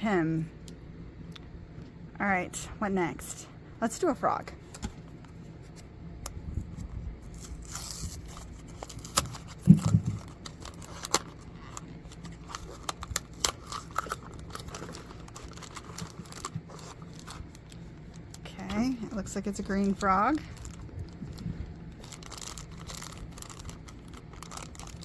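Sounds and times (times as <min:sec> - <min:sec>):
cardboard and plastic bag tearing: 0:07.2 - 0:25.0.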